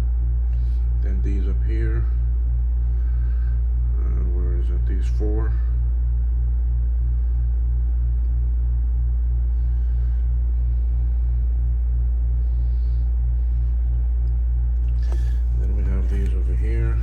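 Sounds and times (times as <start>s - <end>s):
low electrical hum: 0.0s - 17.0s
pulsing buzz: 9.3s - 17.0s.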